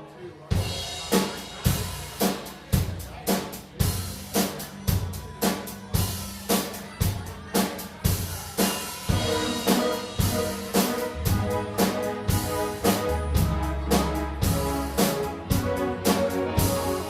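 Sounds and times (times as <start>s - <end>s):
drum kit beat: 0.5s - 17.0s
instrument chords: 9.0s - 17.0s
bass line: 9.1s - 17.0s.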